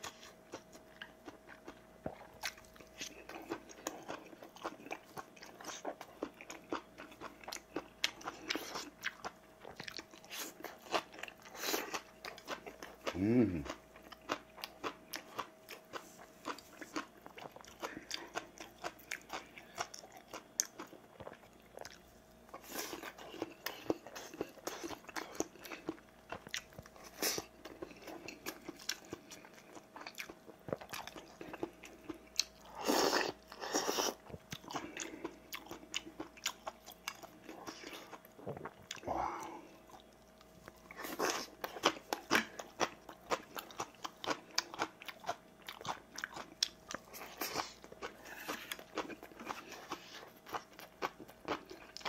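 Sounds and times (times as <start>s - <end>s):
person chewing and crunching: 0.0s - 52.0s.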